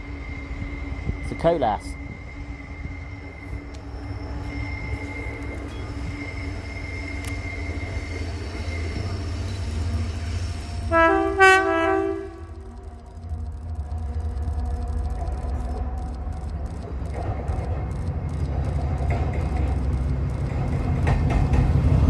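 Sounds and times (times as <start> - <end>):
thin high whine: 0.0 - 21.0
diesel locomotive engine rumble: 0.0 - 22.0
two-tone train horn blast: 10.8 - 13.0.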